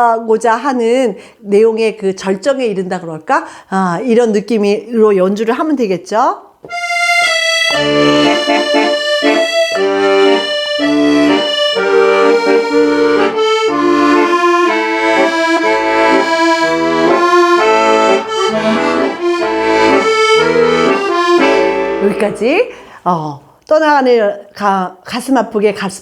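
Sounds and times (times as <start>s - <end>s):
solo accordion playing: 6.7s - 22.7s.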